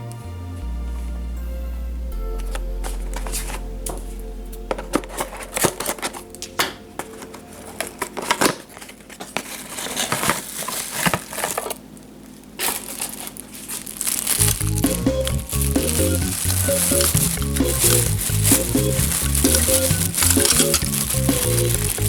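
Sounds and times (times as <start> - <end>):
background music: 0.0 - 8.2, 14.4 - 22.0
packaging crinkling: 4.7 - 22.0.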